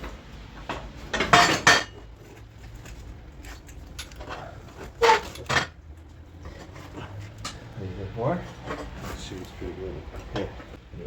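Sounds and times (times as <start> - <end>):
wrench clanking on steel plate: 0.6 - 2.1, 3.4 - 5.8.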